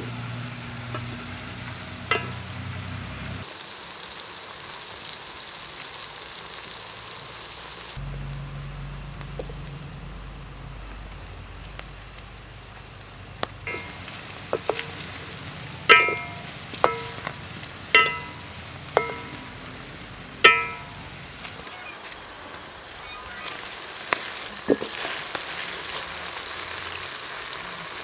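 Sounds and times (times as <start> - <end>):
food deep-frying in oil: 0.0 - 28.0
metal spatula clanking on wok: 2.1 - 2.5, 13.7 - 19.6, 20.4 - 21.2.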